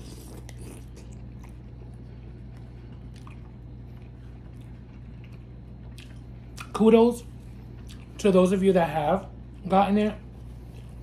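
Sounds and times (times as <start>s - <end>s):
wet chewing clicks: 0.0s - 6.8s.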